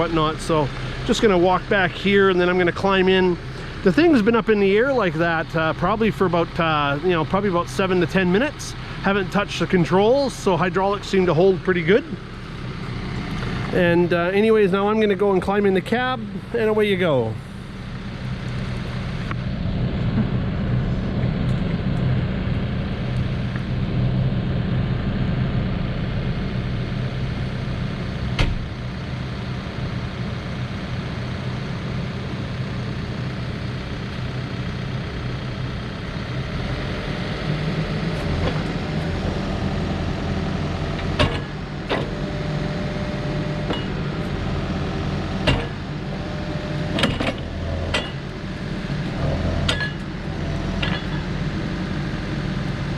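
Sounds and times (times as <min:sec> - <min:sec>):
diesel engine running: 0:00.0 - 0:52.9
high steady whine: 0:00.0 - 0:52.9
sharp metal clanks: 0:43.6 - 0:44.2, 0:45.4 - 0:45.9, 0:47.0 - 0:48.3, 0:49.6 - 0:50.1, 0:50.8 - 0:51.3.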